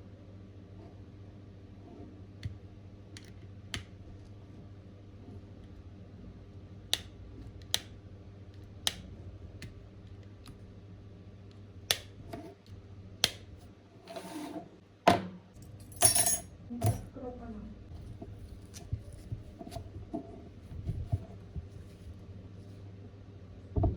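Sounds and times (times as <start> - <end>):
short scraping rub: 14.1 - 14.8.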